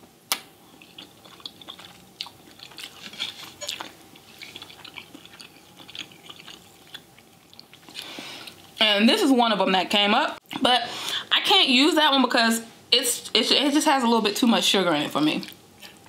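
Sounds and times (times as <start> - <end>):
close chewing with mouth clicks: 0.3 - 8.8.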